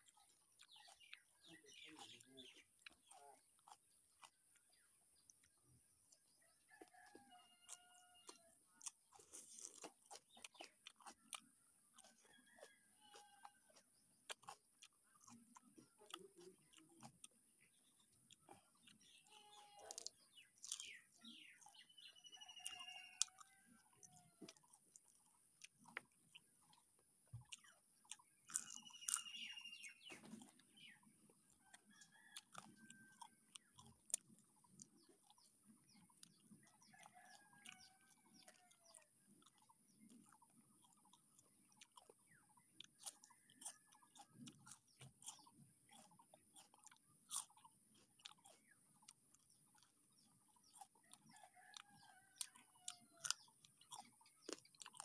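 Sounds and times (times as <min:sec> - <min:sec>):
chewing and crunching: 0:00.0 - 0:55.0
chickens clucking: 0:27.4 - 0:46.7.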